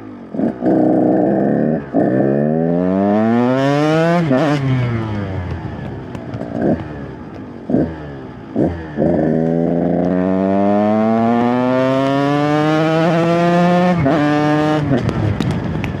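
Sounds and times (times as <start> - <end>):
dirt bike engine revving: 0.3 - 5.7, 6.3 - 15.5.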